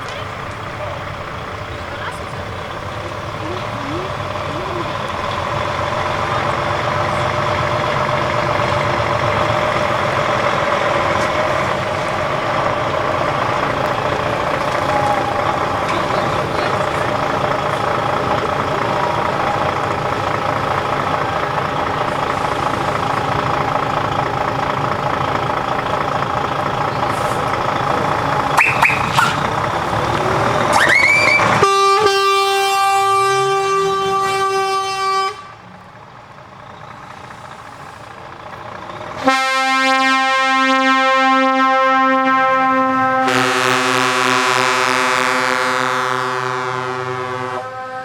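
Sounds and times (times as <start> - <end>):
truck engines running: 0.0 - 48.0
truck air horn blasts: 30.7 - 35.7, 39.2 - 48.0.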